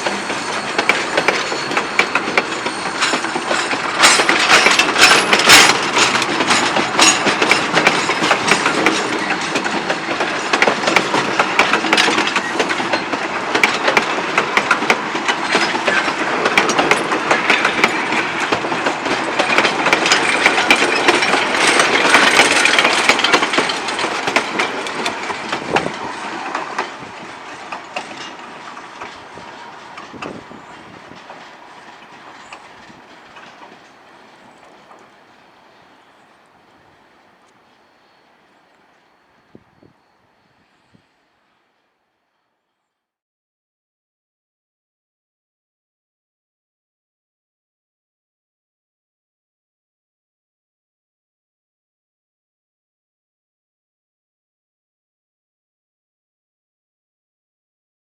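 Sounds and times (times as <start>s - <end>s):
train wheels clattering over rails: 0.0s - 40.9s.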